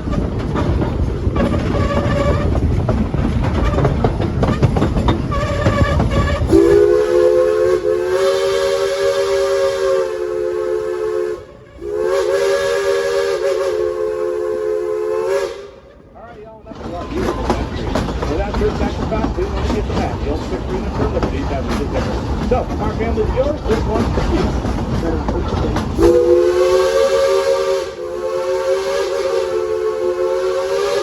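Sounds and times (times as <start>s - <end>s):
rumbling train noise: 0.0s - 31.0s
steam whistle chord blasts: 6.5s - 15.8s, 26.0s - 31.0s.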